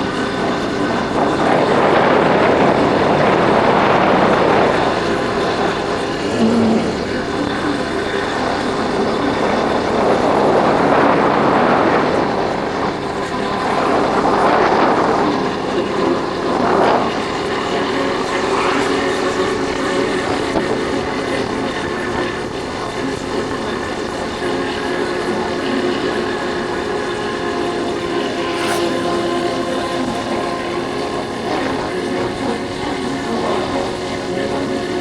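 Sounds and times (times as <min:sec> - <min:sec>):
wind rushing over microphone: 0:00.0 - 0:35.0
motorcycle engine running: 0:27.7 - 0:35.0.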